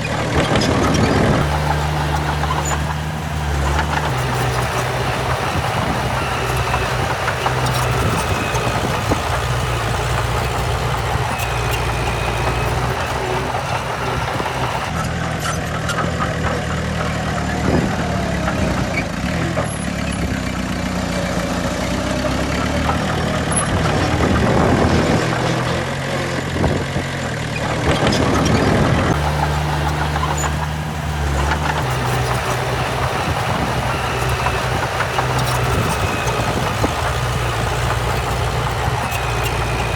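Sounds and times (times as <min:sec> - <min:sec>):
heavy diesel engines running: 0:01.4 - 0:15.0, 0:29.2 - 0:39.9.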